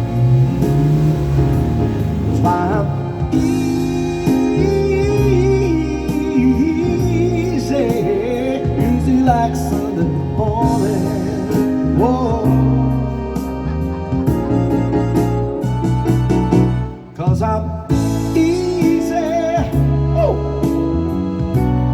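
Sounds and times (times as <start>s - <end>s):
live band music: 0.0s - 21.9s
person singing vocal runs: 2.3s - 12.8s.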